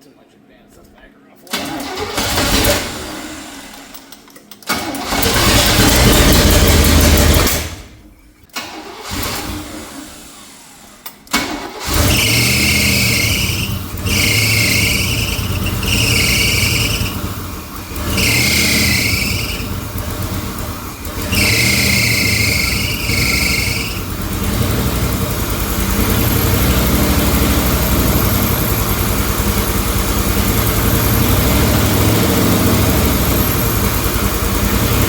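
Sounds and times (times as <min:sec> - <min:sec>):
loud car engine running: 0:05.1 - 0:07.8, 0:11.8 - 0:35.0
engine high squeal: 0:11.8 - 0:20.3, 0:21.0 - 0:35.0.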